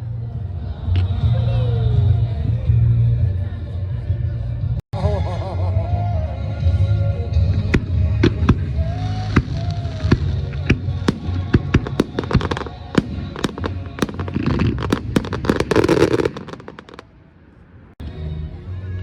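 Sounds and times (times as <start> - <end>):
music playing: 0.0 - 17.0
fireworks bangs and crackles: 7.6 - 17.3.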